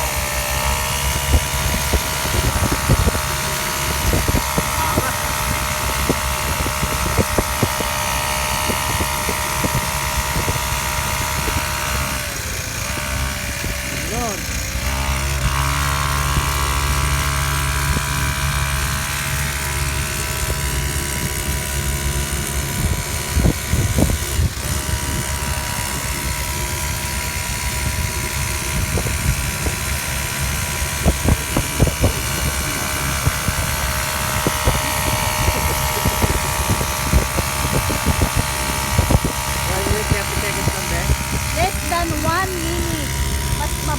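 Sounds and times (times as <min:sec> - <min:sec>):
small motorbike engine droning: 0:00.0 - 0:43.9.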